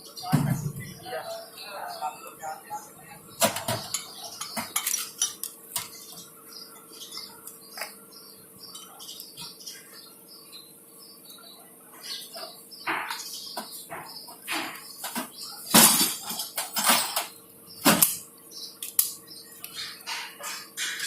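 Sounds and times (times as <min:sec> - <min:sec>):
metal tools clinking: 0:03.5 - 0:05.9, 0:15.7 - 0:17.3.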